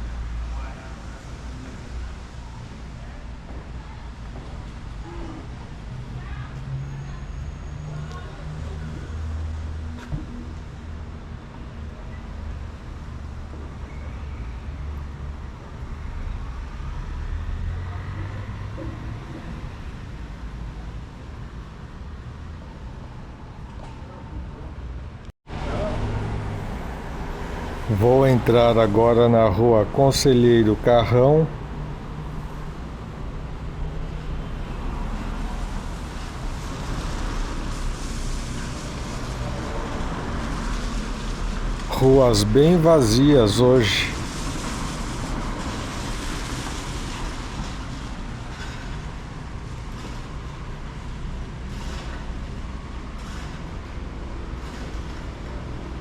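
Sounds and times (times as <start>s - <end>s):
low rumble of traffic: 0.0s - 56.0s
car passing: 25.5s - 48.4s
tyres hissing on wet asphalt: 26.1s - 33.2s, 34.6s - 52.3s.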